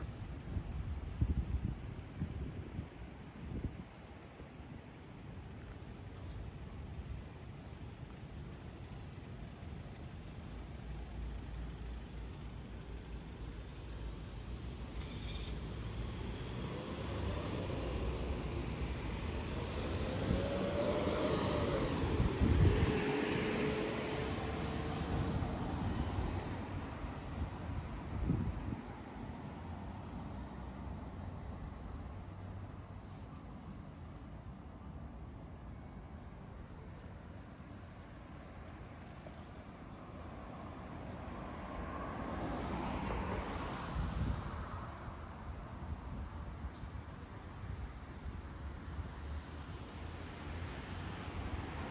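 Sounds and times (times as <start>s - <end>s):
vehicle passing by: 15.9s - 26.5s.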